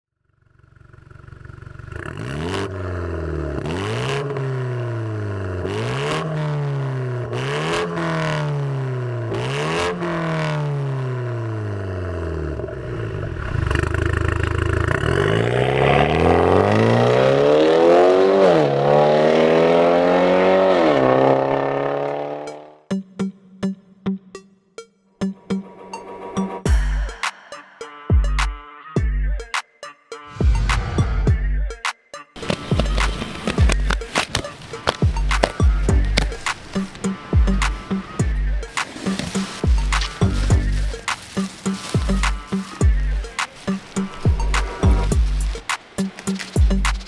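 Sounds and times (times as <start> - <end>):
car engine revving: 0.5 - 22.8, 32.4 - 47.0.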